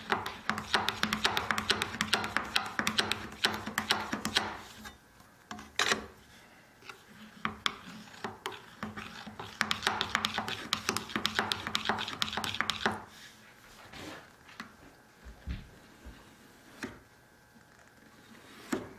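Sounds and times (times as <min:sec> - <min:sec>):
cabinet scraper scraping strokes: 0:00.0 - 0:05.0, 0:06.8 - 0:14.3, 0:15.8 - 0:17.0, 0:18.0 - 0:18.9.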